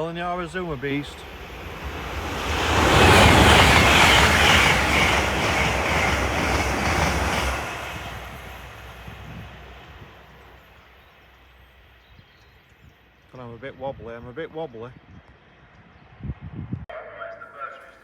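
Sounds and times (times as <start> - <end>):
train passing: 0.0 - 12.0.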